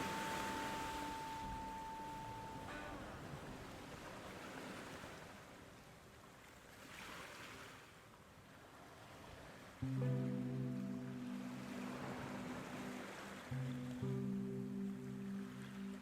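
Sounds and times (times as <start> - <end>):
music: 0.0 - 3.8, 9.8 - 16.0
soft rushing wind: 0.0 - 5.3.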